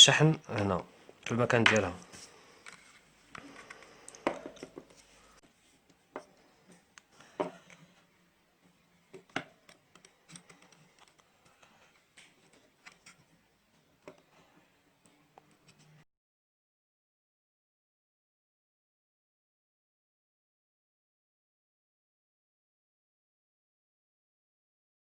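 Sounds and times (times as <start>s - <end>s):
plastic parts clicking and scraping: 2.6s - 5.2s, 5.8s - 14.6s.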